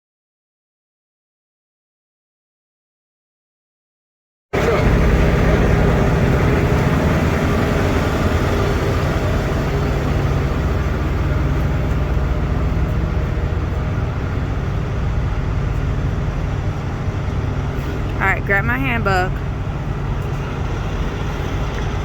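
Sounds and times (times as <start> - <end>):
diesel truck engine running: 4.6 - 22.0
road noise: 4.6 - 22.0.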